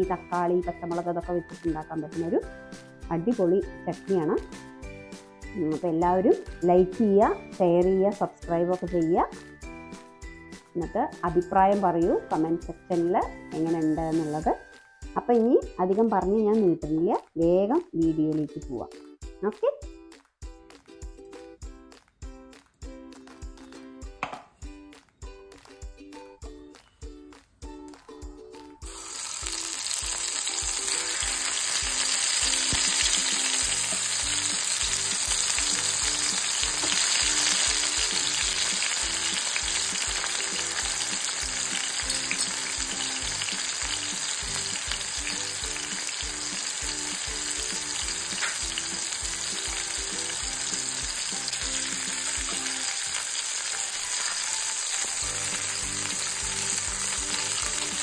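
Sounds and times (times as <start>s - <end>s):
tomatoes sizzling in oil: 28.8s - 58.0s.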